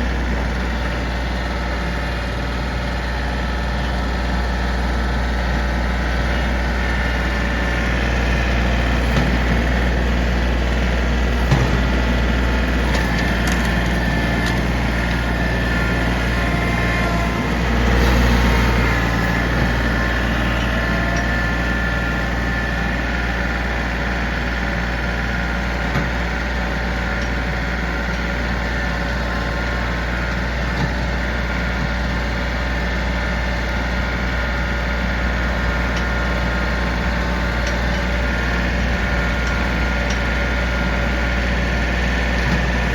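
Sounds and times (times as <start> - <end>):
heavy diesel engine running: 0.0 - 42.9
wood cracking: 11.5 - 15.4.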